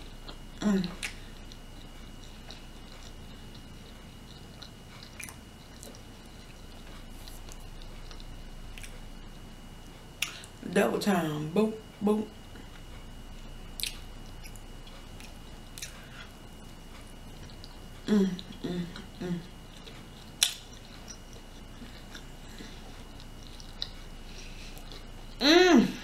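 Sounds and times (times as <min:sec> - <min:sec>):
person chewing food: 0:00.0 - 0:10.6, 0:12.3 - 0:25.4
wet mouth clicks: 0:10.2 - 0:10.5, 0:13.8 - 0:14.6, 0:20.3 - 0:21.3
person humming: 0:18.0 - 0:19.5, 0:25.4 - 0:26.0.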